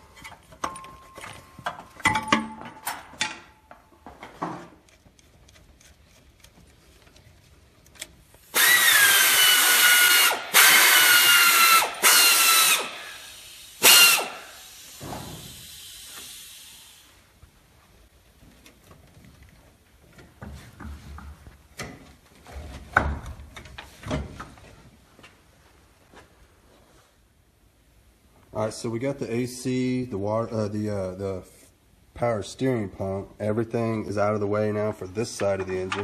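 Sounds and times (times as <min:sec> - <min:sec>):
hand tools clinking on metal: 0:00.0 - 0:03.8
pneumatic wrench whining: 0:08.5 - 0:17.1.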